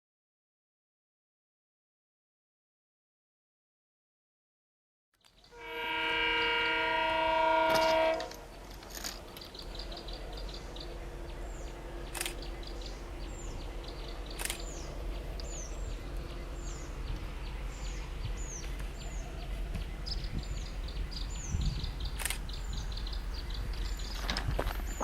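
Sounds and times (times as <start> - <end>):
birds chirping: 5.2 - 25.0
steady low rumble: 8.2 - 25.0.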